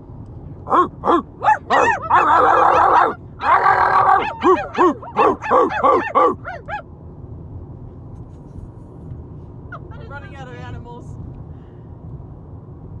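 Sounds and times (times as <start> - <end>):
car road noise hum: 0.6 - 6.9
people imitating dog barks: 0.7 - 6.8.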